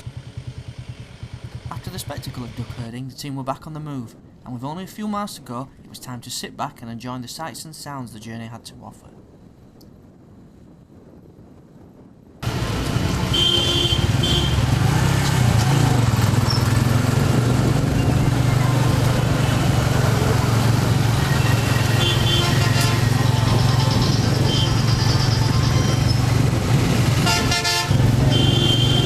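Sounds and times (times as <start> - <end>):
motorbike and vehicle engines: 0.0 - 2.9, 12.4 - 29.0
short horn toots: 13.0 - 14.7, 21.4 - 23.3, 27.2 - 29.0.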